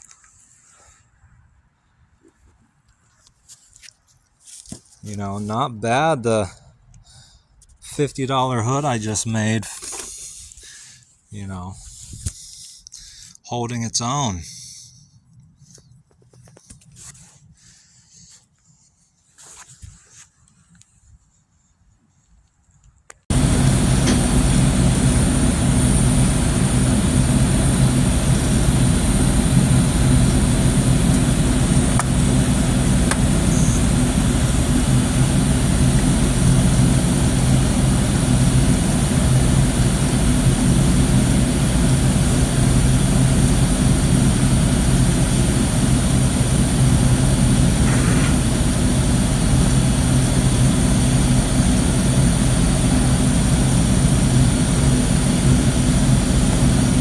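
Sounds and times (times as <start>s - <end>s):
mechanical drone with low hum: 23.3s - 57.0s.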